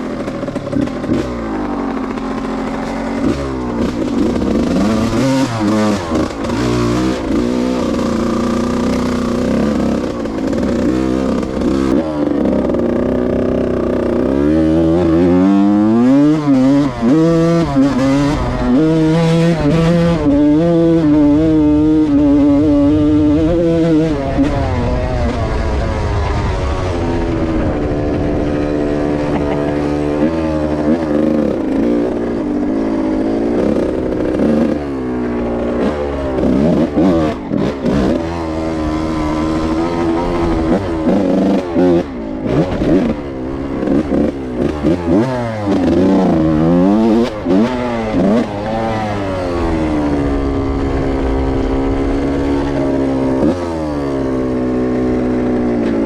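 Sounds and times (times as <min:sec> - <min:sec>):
two-stroke motorcycle engine revving: 0:00.0 - 0:56.0.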